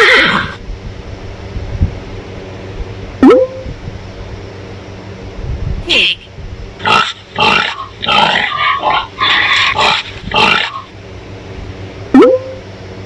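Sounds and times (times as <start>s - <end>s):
pig squealing and grunting: 0.0s - 0.6s, 6.8s - 11.0s.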